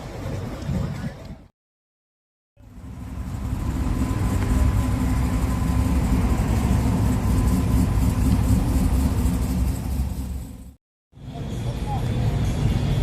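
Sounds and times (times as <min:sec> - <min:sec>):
vehicle engine rumbling: 0:02.6 - 0:13.0.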